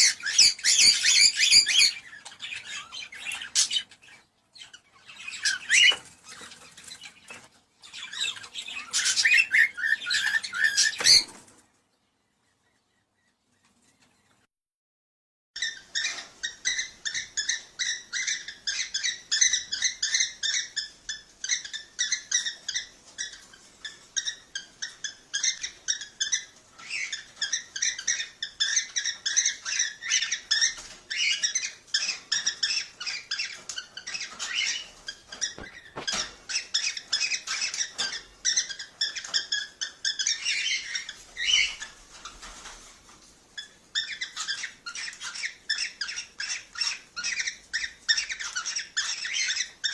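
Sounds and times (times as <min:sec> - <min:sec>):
cockatiel chirping and warbling: 0:00.0 - 0:11.4, 0:15.6 - 0:42.7, 0:43.6 - 0:49.9.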